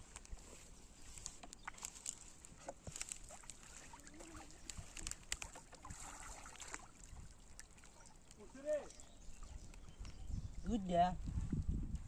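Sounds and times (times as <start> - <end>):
small clicks and drips: 1.1 - 10.2
river water splashing: 1.6 - 9.8.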